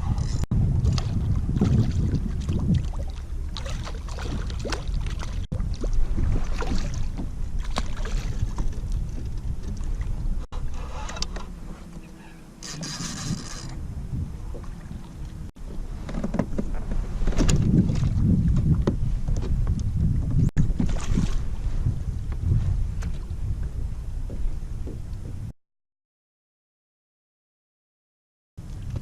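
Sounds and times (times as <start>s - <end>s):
water splashing around kayak: 0.0s - 25.0s
low rumble: 0.0s - 25.5s.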